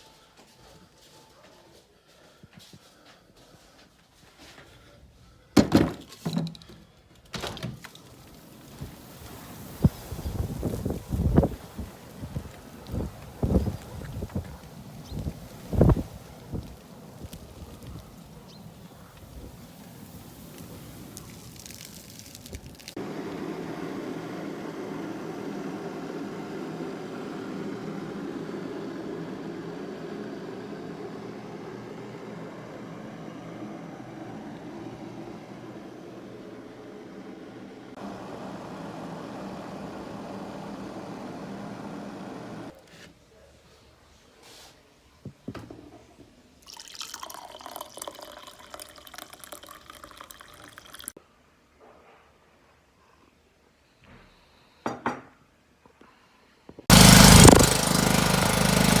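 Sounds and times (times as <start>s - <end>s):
generator engine humming: 7.8s - 21.4s, 23.0s - 42.8s, 56.9s - 59.0s.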